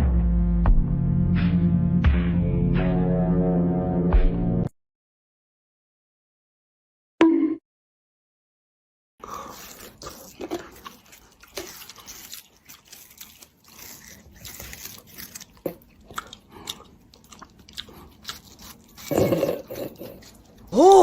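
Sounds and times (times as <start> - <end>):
chewing and crunching: 9.2 - 21.0.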